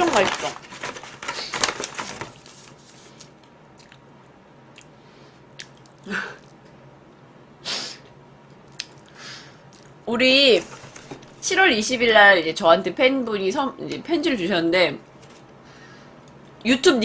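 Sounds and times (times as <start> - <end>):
person chewing: 3.8 - 4.0, 5.6 - 6.6, 8.7 - 10.0
breathy nasal exhales: 9.1 - 9.6.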